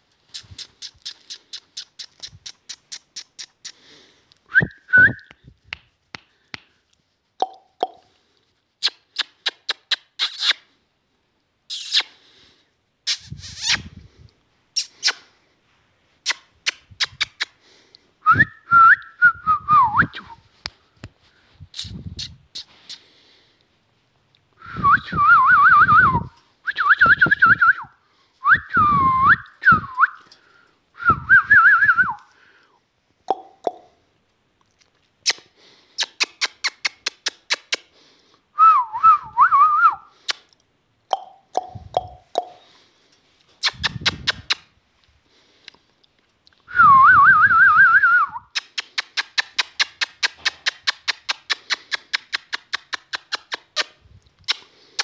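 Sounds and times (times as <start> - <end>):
parrot rapid clicks: 48.6 - 53.8.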